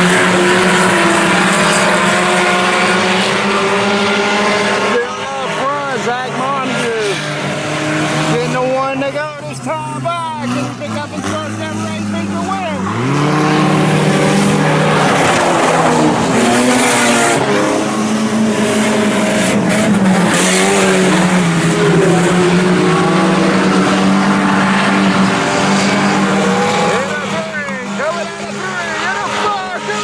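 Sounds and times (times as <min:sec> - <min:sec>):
race car engines revving: 0:00.0 - 0:30.0.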